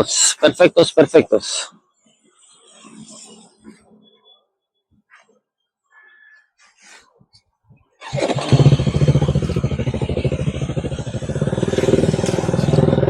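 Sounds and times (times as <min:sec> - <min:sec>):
motorcycle engine running: 0:08.0 - 0:13.0.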